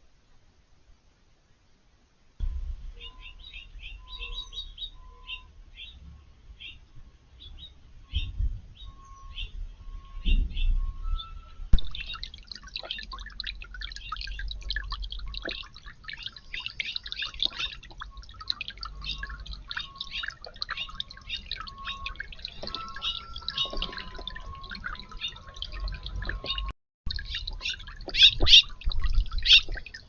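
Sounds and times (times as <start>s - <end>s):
fountain water trickling: 11.8s - 30.0s.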